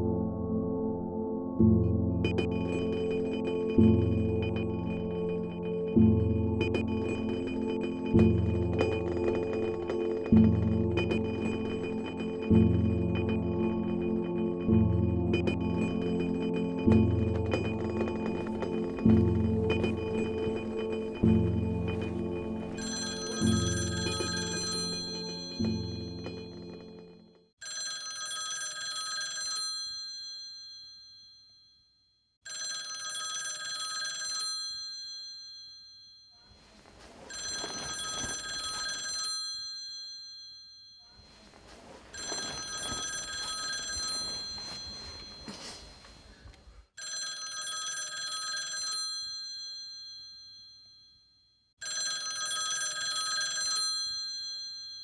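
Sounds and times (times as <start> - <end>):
low music: 0.0 - 27.1
telephone ringing: 2.2 - 31.6, 32.5 - 55.0.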